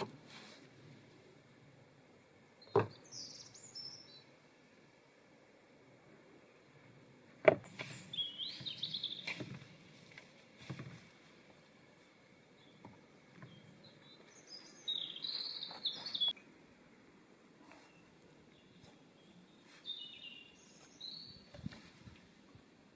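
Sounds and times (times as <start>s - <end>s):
songbird warbling: 7.7s - 9.4s, 13.4s - 16.4s.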